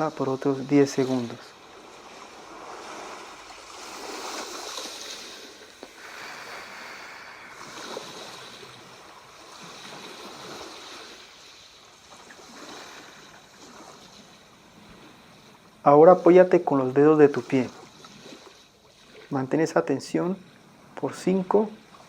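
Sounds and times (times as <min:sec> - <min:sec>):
sea waves washing onto shore: 0:00.0 - 0:22.0.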